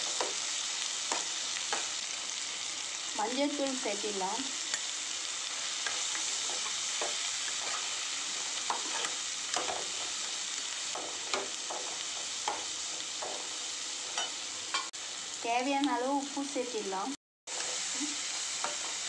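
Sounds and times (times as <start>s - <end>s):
onions and tomatoes sizzling in oil: 0.0s - 19.0s
spatula scraping and knocking pan: 5.8s - 8.0s, 8.6s - 10.2s, 10.9s - 14.9s.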